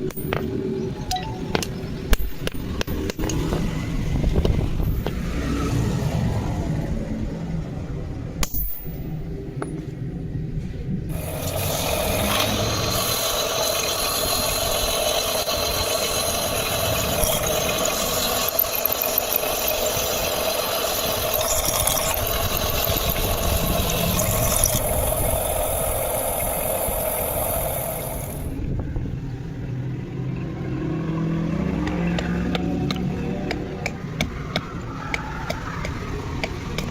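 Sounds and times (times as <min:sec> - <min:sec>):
electric power tool running: 0:11.1 - 0:28.5.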